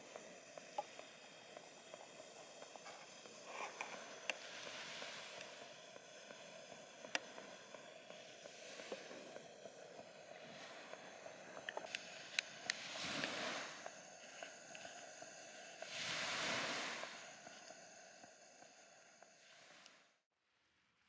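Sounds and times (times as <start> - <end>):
small waves washing on beach: 11.9 - 13.9, 15.8 - 17.2.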